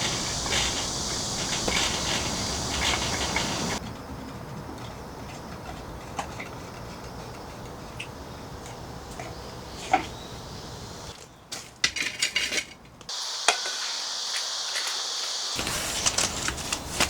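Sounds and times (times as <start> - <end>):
rain pattering: 0.0 - 3.8.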